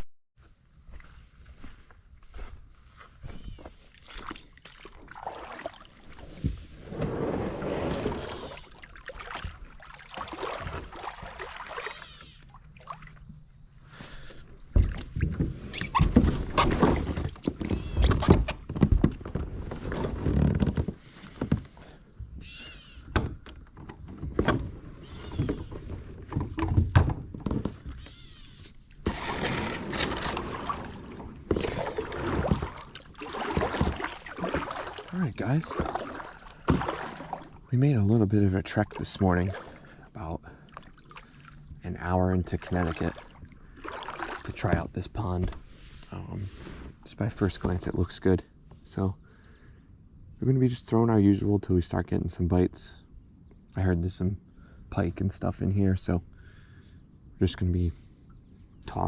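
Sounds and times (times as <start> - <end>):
paddle splashes: 3.8 - 13.4, 14.3 - 20.3, 27.5 - 46.8
knocks against kayak hull: 35.8 - 37.3.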